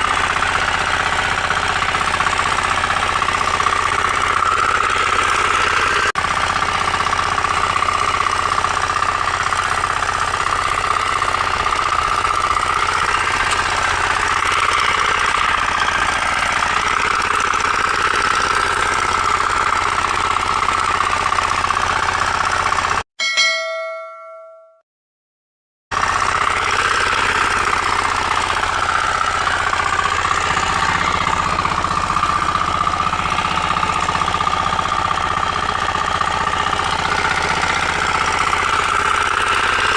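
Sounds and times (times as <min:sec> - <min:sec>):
power weeder engine running: 0:00.0 - 0:23.0, 0:25.9 - 0:39.9
short ringing ding: 0:23.2 - 0:24.8.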